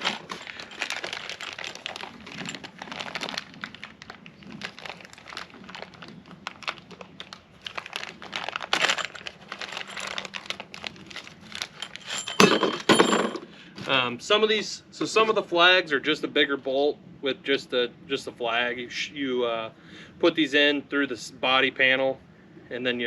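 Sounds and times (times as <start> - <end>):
packaging crinkling: 0.0 - 12.5
packaging rustle: 0.0 - 12.8.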